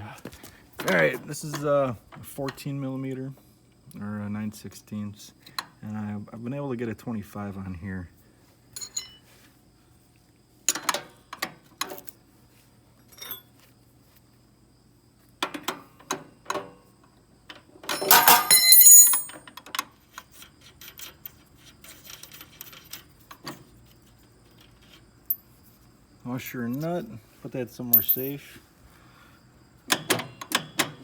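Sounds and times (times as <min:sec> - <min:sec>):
wrench clinking on metal: 0:08.8 - 0:09.2, 0:17.9 - 0:19.5, 0:27.9 - 0:28.4
ringing metal clatter: 0:17.9 - 0:19.4
steel parts knocking together: 0:17.9 - 0:19.4, 0:28.0 - 0:28.4.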